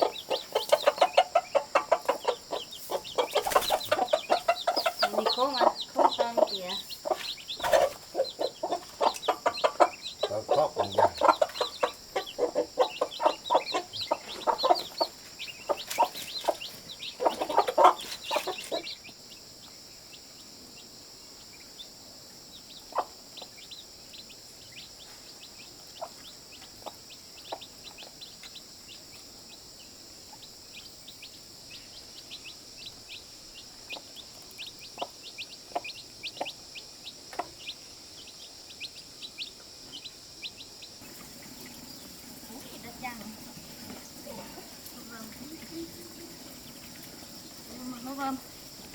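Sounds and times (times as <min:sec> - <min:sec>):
chickens clucking: 0:00.0 - 0:19.9, 0:22.5 - 0:48.9.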